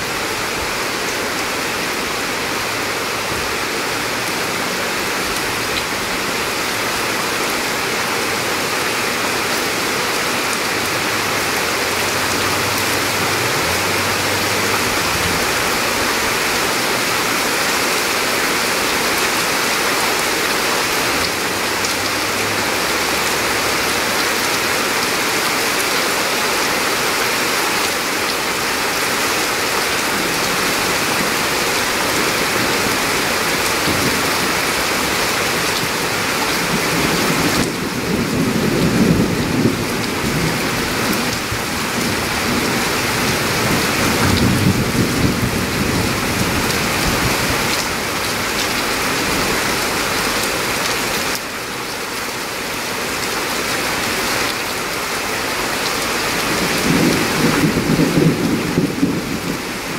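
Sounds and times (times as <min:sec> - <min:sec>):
steady rain falling: 0:00.0 - 0:59.9
thunder rumbling: 0:36.6 - 0:47.8, 0:56.6 - 0:59.9.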